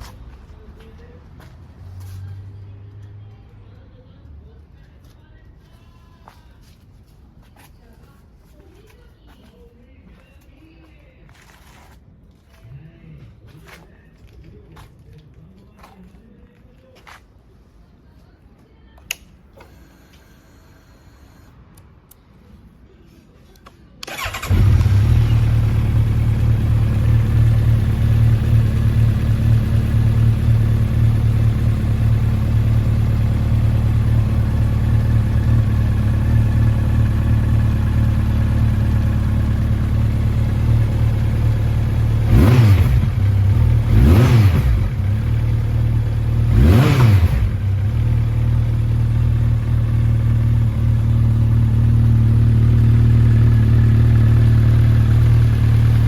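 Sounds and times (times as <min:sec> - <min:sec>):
motorcycle engine starting and idling: 0:24.0 - 0:56.0
engine revving: 0:24.1 - 0:30.3, 0:41.0 - 0:49.2.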